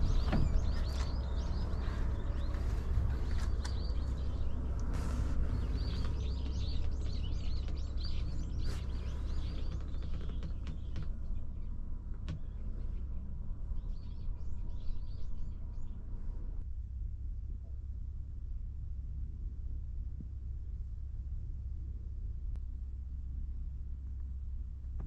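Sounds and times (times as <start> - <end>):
small birds chirping: 0.0 - 16.6
steady low rumble: 0.0 - 25.0.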